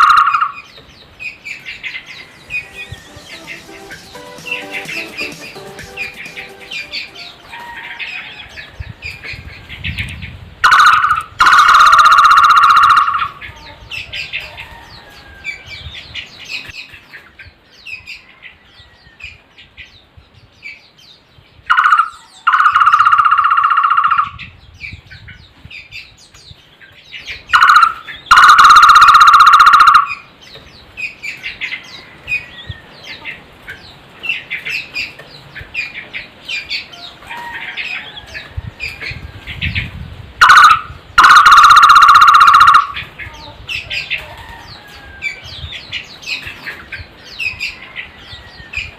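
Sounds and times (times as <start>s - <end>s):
barbet calling with rapid trill: 0.0s - 0.7s, 1.3s - 8.4s, 10.6s - 14.5s, 21.7s - 24.5s, 27.4s - 30.3s, 40.4s - 44.2s
small birds chirping: 0.0s - 48.9s.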